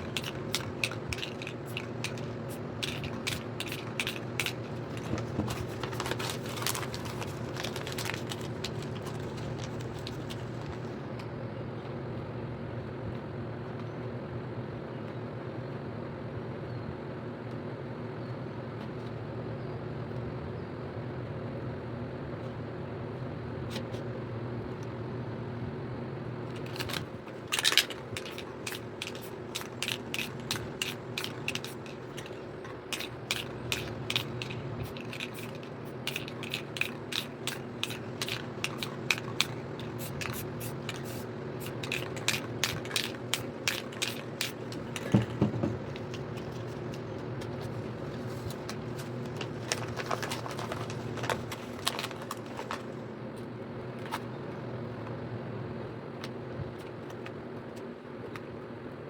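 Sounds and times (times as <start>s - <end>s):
sharp clicks and scrapes: 0.0s - 10.9s, 26.5s - 53.0s
steady low hum: 0.0s - 59.0s.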